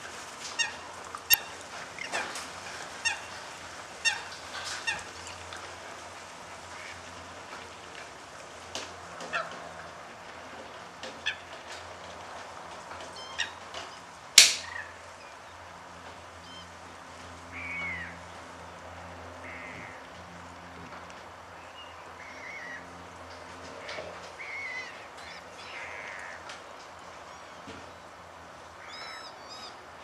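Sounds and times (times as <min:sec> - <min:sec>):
waterbird calls: 0:00.5 - 0:05.8, 0:13.1 - 0:15.4, 0:23.8 - 0:26.4, 0:28.8 - 0:29.8.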